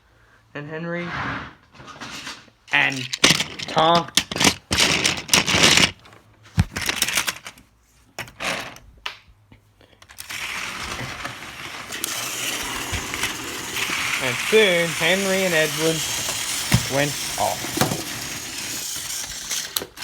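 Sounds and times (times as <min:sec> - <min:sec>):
toy trains clicking and rattling: 0:02.0 - 0:06.0, 0:10.0 - 0:20.0
steady hiss: 0:11.9 - 0:18.6.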